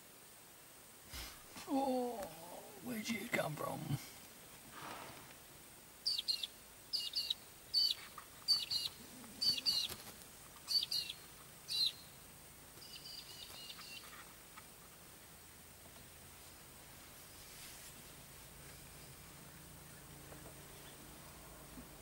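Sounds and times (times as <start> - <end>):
bird twittering: 6.0 - 10.0, 10.6 - 12.2, 12.8 - 14.1
bird chirping: 6.0 - 14.4, 18.6 - 21.2.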